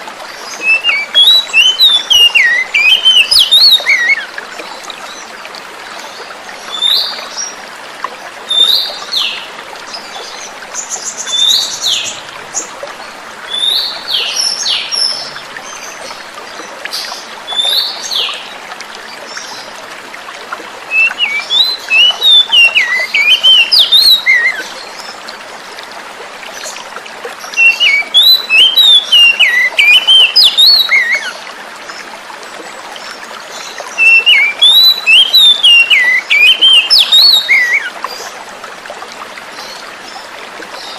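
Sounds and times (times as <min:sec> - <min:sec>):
trickle of flowing water: 0:00.0 - 0:40.9
bird calling and singing: 0:00.4 - 0:04.3, 0:20.9 - 0:24.9, 0:27.5 - 0:31.4, 0:33.5 - 0:37.9.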